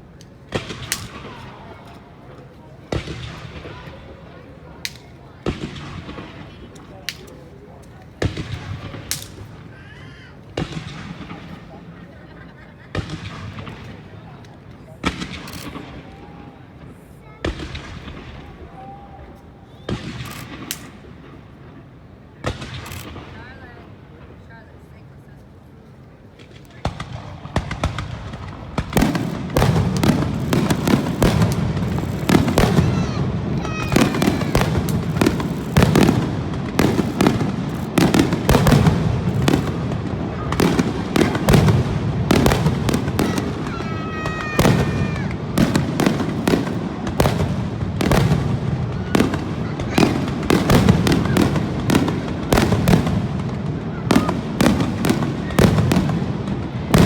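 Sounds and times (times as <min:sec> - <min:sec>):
fireworks booming and cracking: 0:00.0 - 0:12.1, 0:12.8 - 0:23.5, 0:26.4 - 0:57.0
whistling firework glides: 0:19.2 - 0:20.2, 0:29.0 - 0:45.8.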